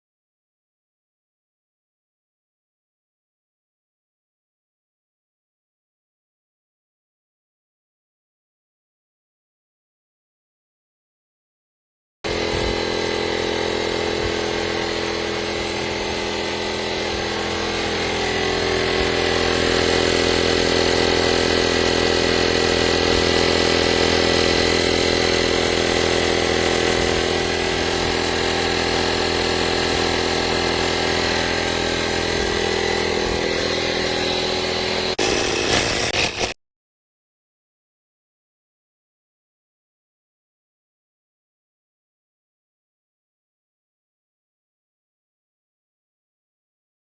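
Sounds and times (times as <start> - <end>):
air compressor motor hum: 12.3 - 36.6
compressor rattling: 12.3 - 36.6.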